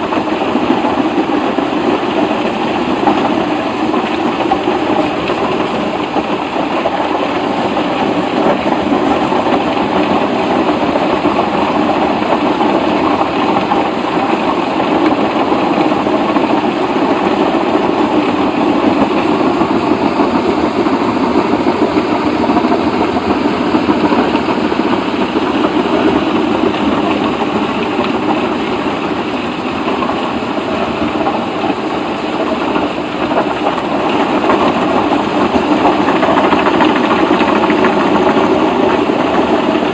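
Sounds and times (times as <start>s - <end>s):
heavy machine engine running: 0.0s - 39.9s.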